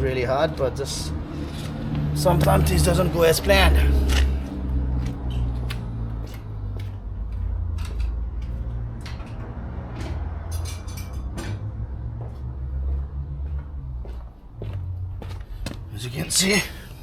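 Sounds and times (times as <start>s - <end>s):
metallic clicks and knocks: 7.7s - 11.6s.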